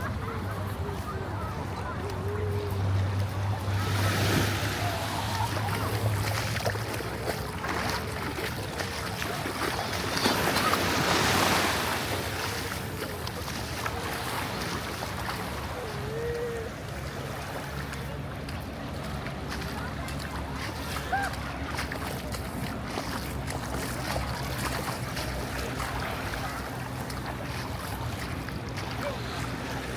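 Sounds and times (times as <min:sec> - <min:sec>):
ocean surf washing ashore: 0:02.8 - 0:19.4.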